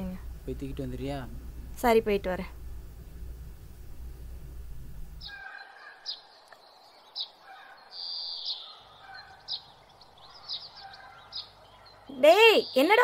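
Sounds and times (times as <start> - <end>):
low steady hum: 0.0 - 5.4
birds chirping: 5.2 - 13.0.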